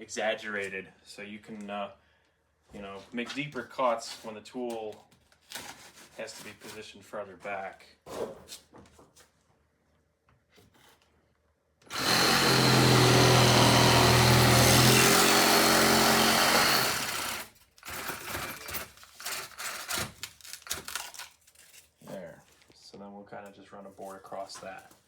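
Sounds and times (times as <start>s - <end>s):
reciprocating saw cutting foam: 11.9s - 18.2s.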